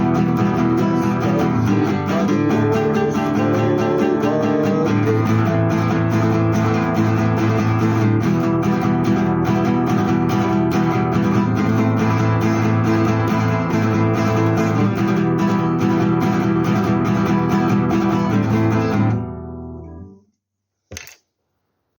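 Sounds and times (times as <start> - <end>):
acoustic guitar strumming: 0.0 - 20.2
brief knock or rustle: 20.9 - 21.3.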